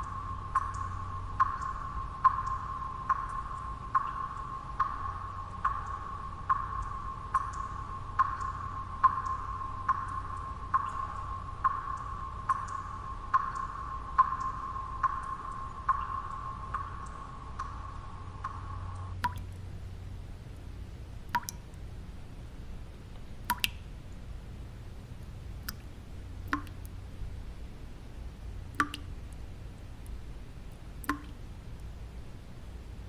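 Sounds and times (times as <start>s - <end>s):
low steady background noise: 0.0s - 33.0s
water drops ringing: 19.2s - 22.0s, 22.9s - 24.3s, 25.2s - 27.4s, 28.6s - 32.3s.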